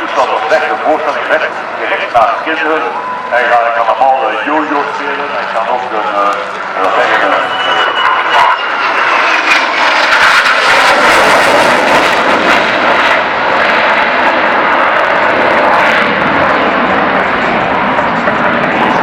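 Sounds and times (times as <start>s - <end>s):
faint falling whine: 1.0s - 8.8s
aircraft flying past: 4.6s - 19.0s.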